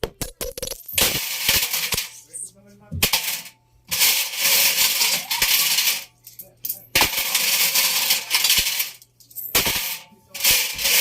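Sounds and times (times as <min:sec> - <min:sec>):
metal objects clattering in washing machine: 0:00.9 - 0:02.2, 0:03.0 - 0:06.1, 0:06.9 - 0:11.0.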